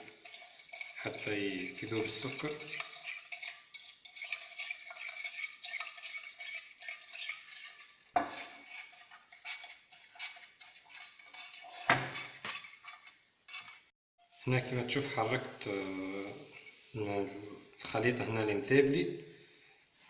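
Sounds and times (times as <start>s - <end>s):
spoon clinking in container: 0.0s - 13.8s.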